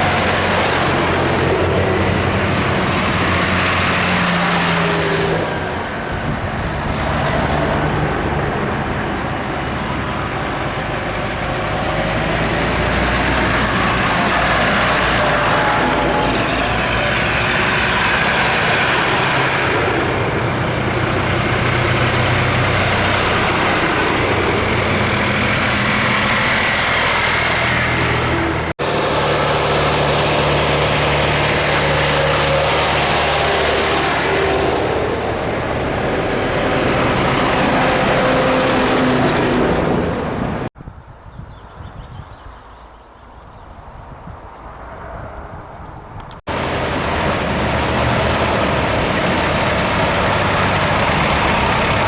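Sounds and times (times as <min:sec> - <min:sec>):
motor vehicle engines running: 0:00.0 - 0:40.8, 0:42.9 - 0:52.0.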